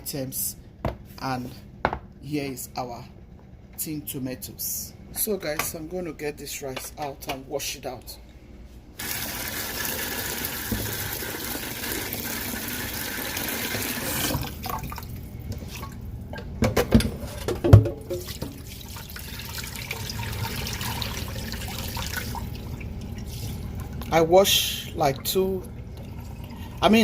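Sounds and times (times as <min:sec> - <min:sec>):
rice being washed: 0:09.0 - 0:14.8, 0:18.1 - 0:24.1
kitchen tap running into bowl: 0:09.0 - 0:15.0, 0:17.7 - 0:24.2
bowl clunking in sink: 0:16.3 - 0:18.6.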